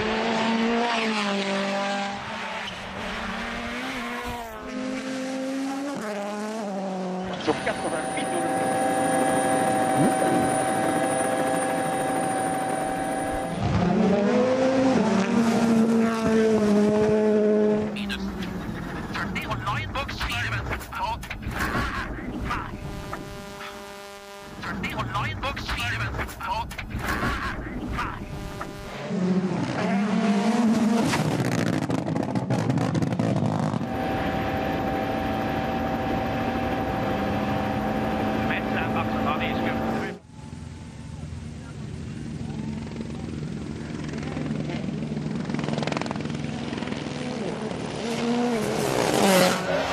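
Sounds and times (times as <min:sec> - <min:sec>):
car accelerating: 0:00.0 - 0:19.9, 0:27.0 - 0:40.2, 0:44.5 - 0:49.9
rally car engine: 0:00.0 - 0:49.9.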